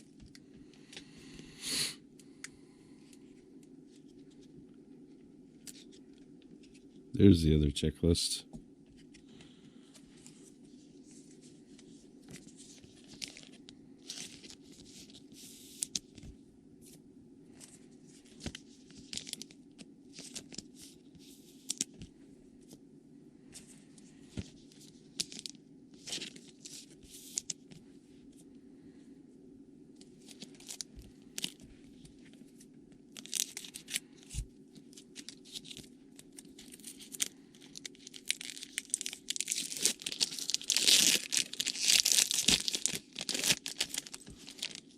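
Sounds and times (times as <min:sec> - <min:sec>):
pack wrapper crinkling: 0:18.5 - 0:20.7, 0:30.2 - 0:31.6, 0:33.1 - 0:34.3, 0:34.9 - 0:44.9.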